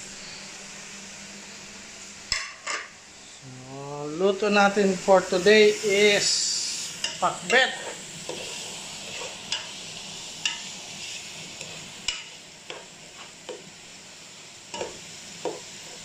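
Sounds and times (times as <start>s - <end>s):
meat sizzling in a pot: 0.0s - 16.0s
spatula scraping a pot: 7.5s - 9.7s.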